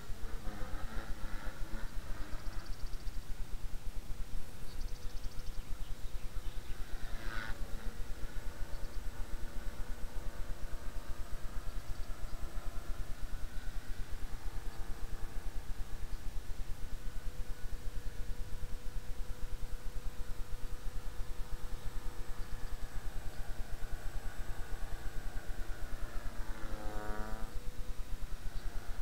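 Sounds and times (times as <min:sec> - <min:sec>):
rc helicopter rotor whine: 0:00.0 - 0:29.0.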